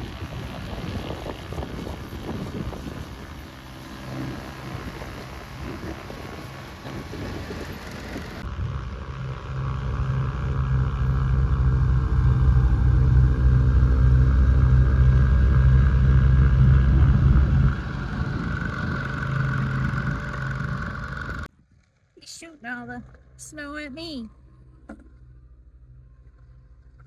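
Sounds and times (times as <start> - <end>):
snowblower engine running: 0.0 - 21.5.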